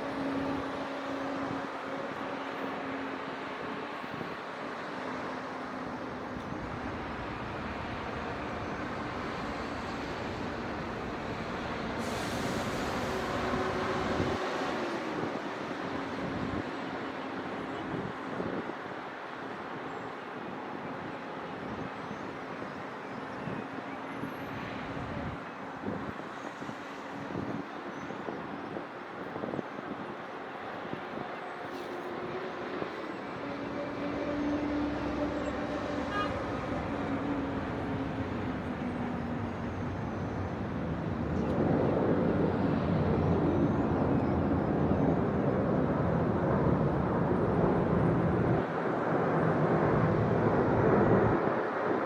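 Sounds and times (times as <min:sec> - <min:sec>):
distant road traffic hum: 0:00.0 - 0:19.7, 0:21.4 - 0:52.0
distant road traffic rumble: 0:30.3 - 0:52.0.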